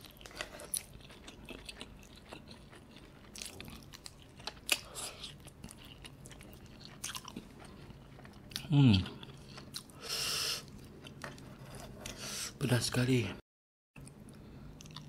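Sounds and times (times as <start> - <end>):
wet chewing and biting: 0.0 - 10.0.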